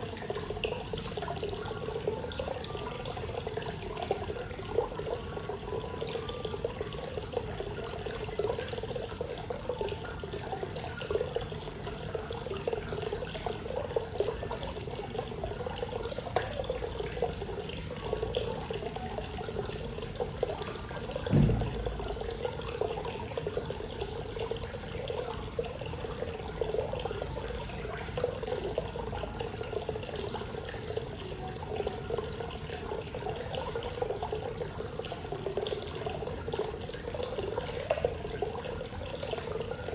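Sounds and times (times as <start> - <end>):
water pouring into a bath: 0.0 - 39.9
low thump: 21.2 - 22.4.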